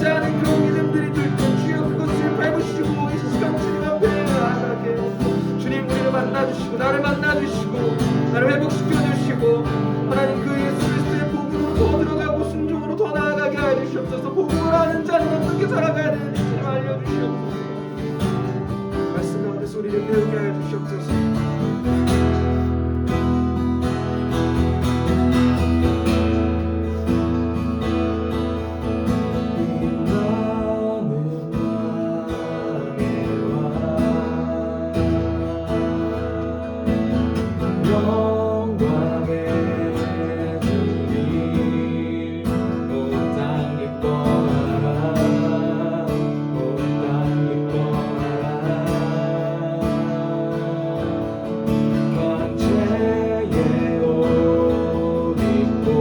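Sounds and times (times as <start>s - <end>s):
acoustic guitar strumming chords: 0.0s - 56.0s.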